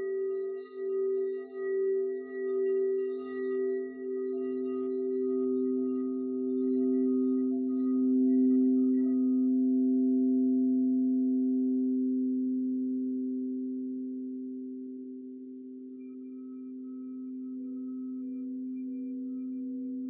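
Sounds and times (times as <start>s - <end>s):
singing bowls ringing: 0.0s - 12.4s.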